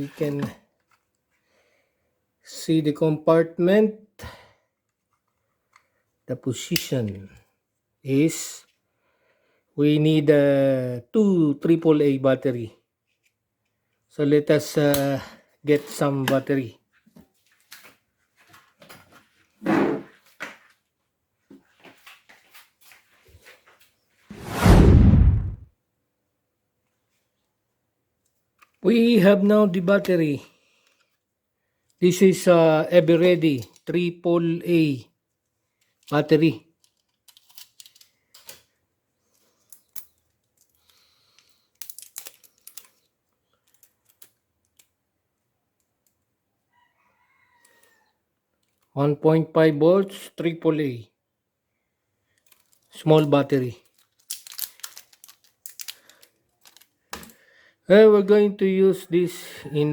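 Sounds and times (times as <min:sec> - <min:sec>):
small clicks and rustles: 0:16.9 - 0:19.6, 0:30.7 - 0:31.2, 0:35.4 - 0:46.3, 0:48.6 - 0:48.9, 0:52.2 - 0:53.0, 0:53.8 - 0:57.4
scrape or knock: 0:19.6 - 0:20.1, 0:24.3 - 0:25.6.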